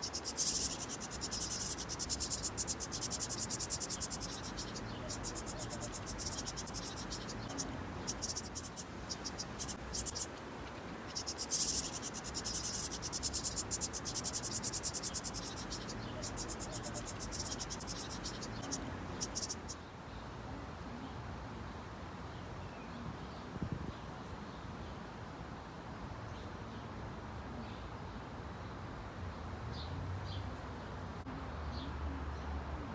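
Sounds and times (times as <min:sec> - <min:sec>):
high-pitched insect trills: 0:00.0 - 0:19.8.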